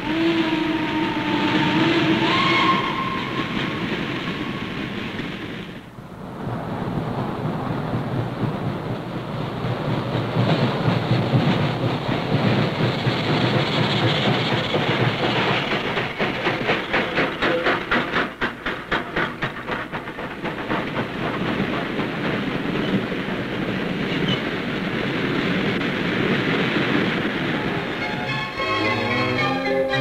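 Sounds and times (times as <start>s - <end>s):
train cars rolling past: 0.0s - 30.0s
wheels clicking over rail joints: 8.0s - 27.6s.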